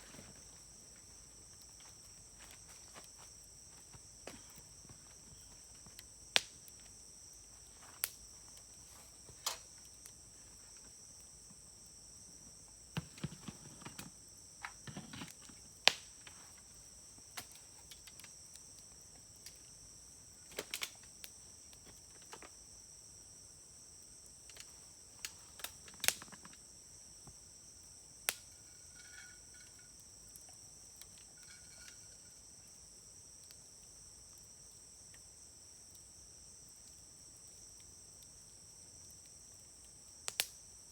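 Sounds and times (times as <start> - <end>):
campfire crackling: 0.0 - 40.9
insects trilling: 0.0 - 40.9
wood pops: 13.0 - 16.4.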